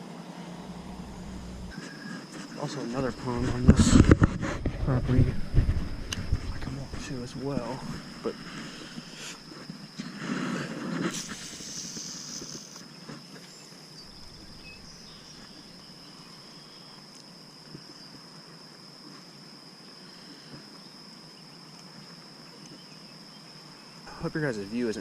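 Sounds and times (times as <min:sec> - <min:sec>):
high-pitched insect trill: 0:00.0 - 0:04.2, 0:04.8 - 0:25.0
outdoor ambience: 0:00.0 - 0:25.0
microphone handling noise: 0:03.0 - 0:09.5, 0:14.1 - 0:15.4.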